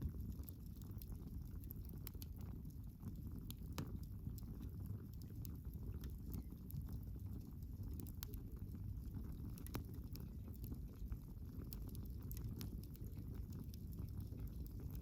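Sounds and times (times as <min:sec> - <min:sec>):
low rumble of flames: 0:00.0 - 0:15.0
wood crackling and popping: 0:00.0 - 0:15.0.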